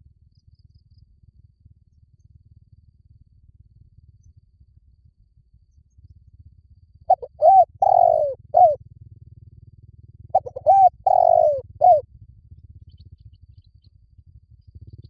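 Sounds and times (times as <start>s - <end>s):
faint low hum: 0.0s - 9.7s, 10.4s - 15.0s
dove cooing: 7.1s - 8.8s, 10.4s - 12.0s.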